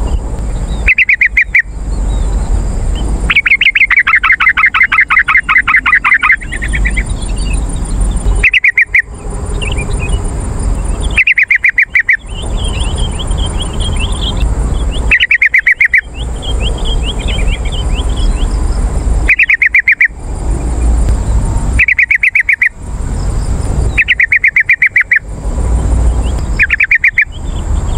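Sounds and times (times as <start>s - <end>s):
bird chattering trill: 0.0s - 27.9s
soft bird warbling: 0.8s - 1.7s, 3.3s - 10.2s, 11.0s - 18.6s, 19.2s - 20.2s, 21.8s - 22.7s, 23.9s - 25.3s, 26.2s - 27.3s.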